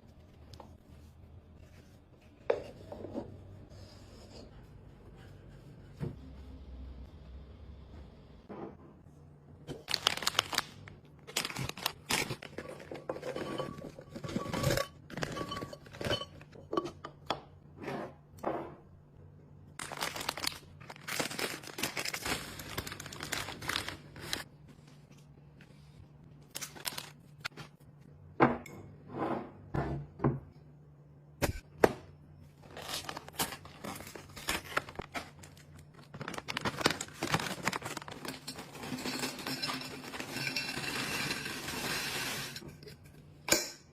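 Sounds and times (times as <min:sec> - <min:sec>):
plastic crinkling and tearing: 0:09.7 - 0:12.9, 0:19.8 - 0:24.5, 0:26.5 - 0:27.5, 0:32.6 - 0:39.1.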